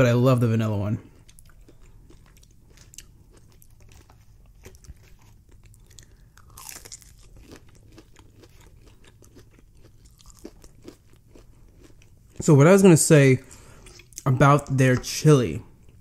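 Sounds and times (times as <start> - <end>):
mouth chewing: 1.0 - 12.5
crunchy bite: 1.2 - 11.9.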